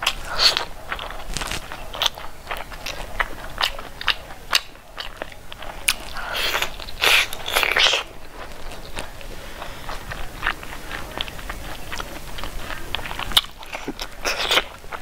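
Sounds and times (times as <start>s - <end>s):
wet chewing with smacking clicks: 9.9s - 15.0s.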